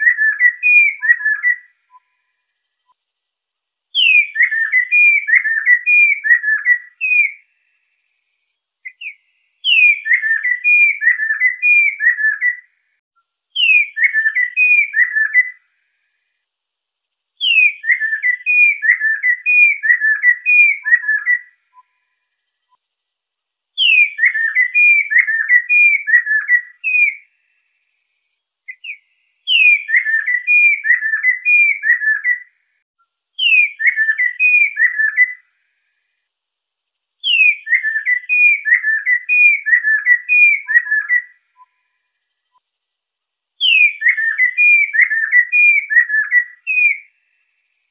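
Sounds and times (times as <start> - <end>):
laughingthrush whistled song: 0.0 - 2.4, 4.0 - 7.7, 8.8 - 12.8, 13.6 - 15.6, 17.4 - 22.2, 23.8 - 27.3, 28.7 - 32.6, 33.4 - 35.5, 37.2 - 42.6, 43.6 - 47.3.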